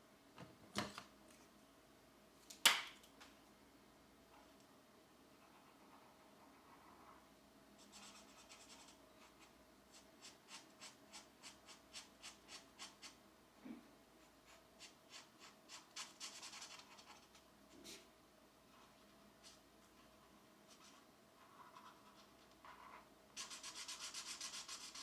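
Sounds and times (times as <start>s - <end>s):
colored pencil scratching on paper: 5.3s - 7.2s, 7.8s - 13.2s, 14.2s - 18.0s, 18.7s - 25.0s.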